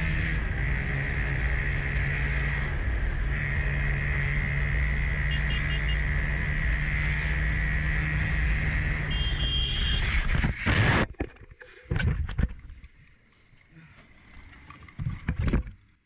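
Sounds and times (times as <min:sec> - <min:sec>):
motorcycle engine: 0:00.0 - 0:11.4.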